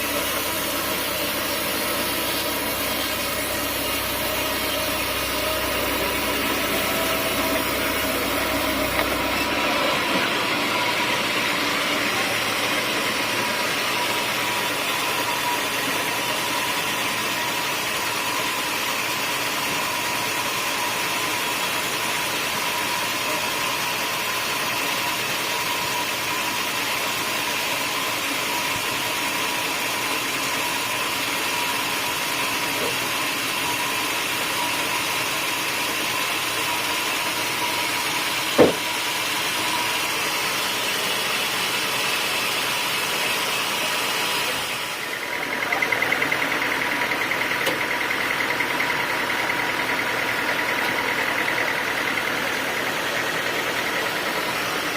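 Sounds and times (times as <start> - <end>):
sawmill machinery running: 0.0 - 54.9
sharp knock: 38.6 - 38.9.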